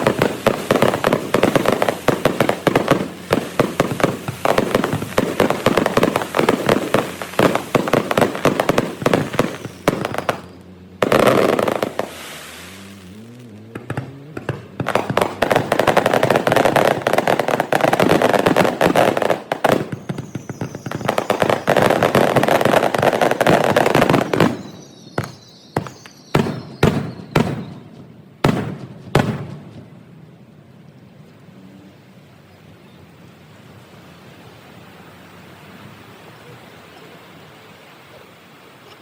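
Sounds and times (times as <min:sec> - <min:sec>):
fireworks crackling bursts: 0:00.0 - 0:30.1
loud fireworks bangs: 0:00.0 - 0:30.1.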